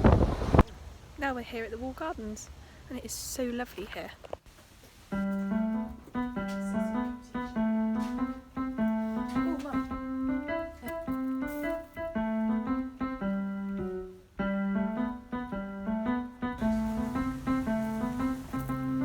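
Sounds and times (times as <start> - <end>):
piano music: 5.2 - 19.0.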